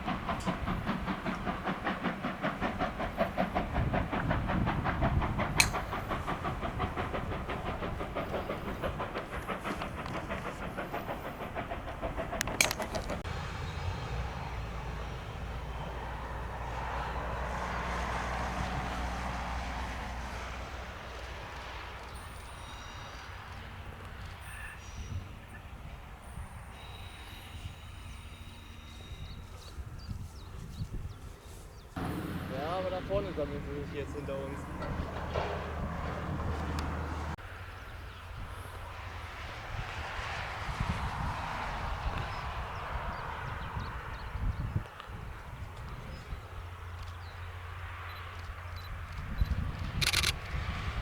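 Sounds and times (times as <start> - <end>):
steam locomotive chuffing: 0.0 - 51.0
train coaches rumbling past: 0.0 - 51.0
sharp clicks: 5.5 - 13.2, 49.1 - 50.6.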